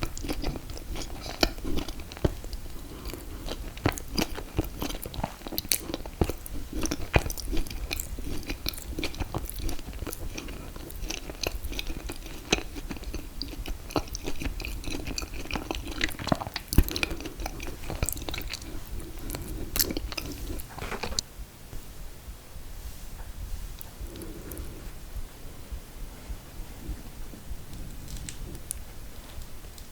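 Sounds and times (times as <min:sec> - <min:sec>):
chewing and biting: 0:00.0 - 0:21.2.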